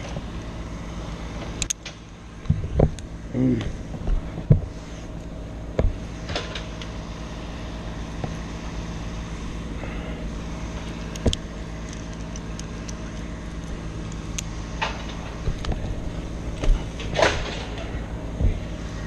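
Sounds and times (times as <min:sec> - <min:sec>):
engine idling: 0:00.0 - 0:19.0
sharp clicks and knocks: 0:01.4 - 0:06.9, 0:10.8 - 0:18.7.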